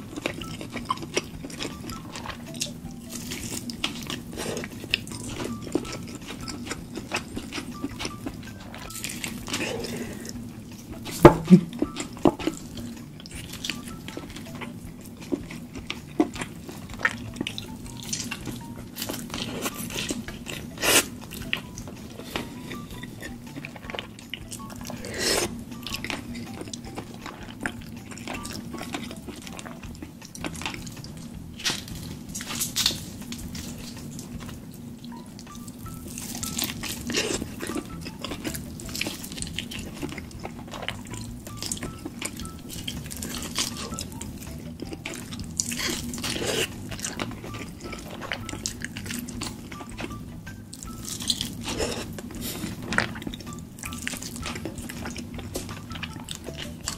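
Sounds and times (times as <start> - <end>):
wet chewing and lip smacking: 0.0 - 56.9.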